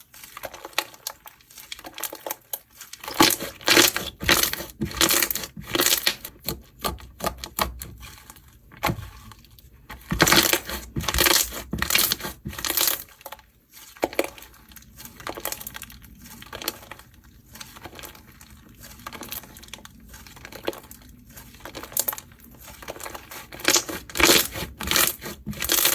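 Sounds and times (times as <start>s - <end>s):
slime crackling and popping: 10.0s - 25.9s.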